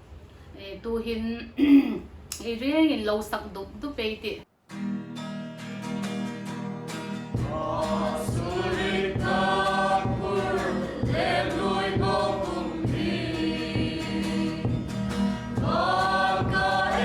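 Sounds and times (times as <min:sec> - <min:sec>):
strummed acoustic guitar: 0:04.7 - 0:17.0.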